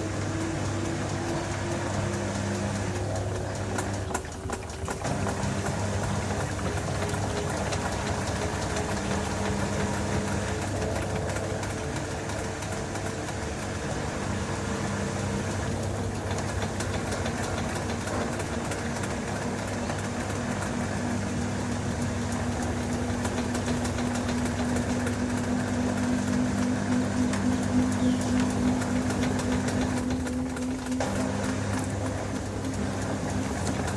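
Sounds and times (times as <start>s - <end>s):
washing machine motor hum: 0.0s - 33.9s
washing machine wash noise: 0.0s - 33.9s.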